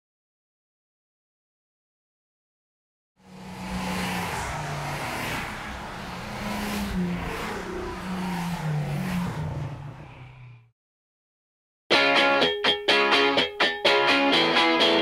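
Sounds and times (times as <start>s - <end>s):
road noise: 3.2s - 10.8s.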